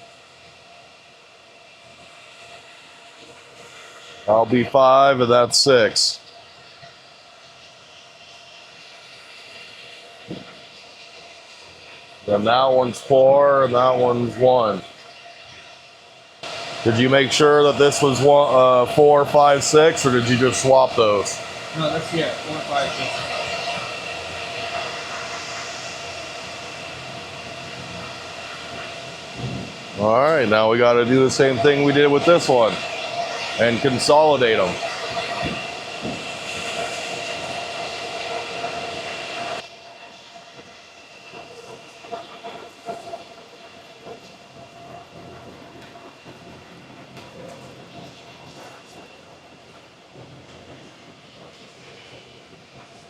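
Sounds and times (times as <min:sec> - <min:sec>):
cooling fans whining: 0:16.4 - 0:38.3.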